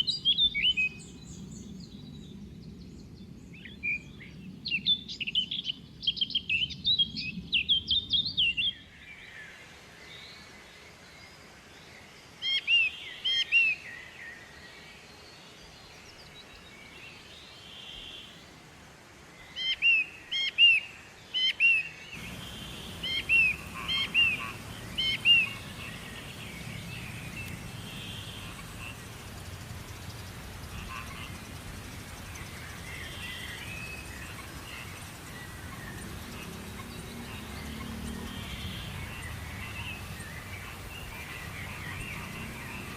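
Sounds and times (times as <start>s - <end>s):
birds chirping: 0.0s - 8.6s, 22.2s - 42.9s
faint background hiss: 0.0s - 42.9s.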